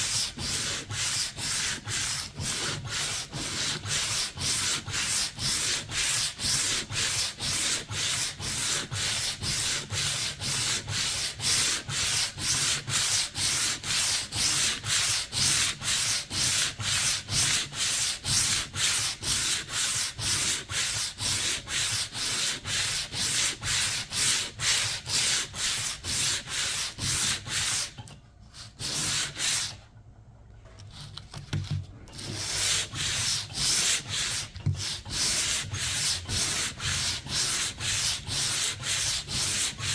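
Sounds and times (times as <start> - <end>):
sandpaper rubbing back and forth: 0.0 - 28.0, 28.6 - 29.8, 32.2 - 39.9.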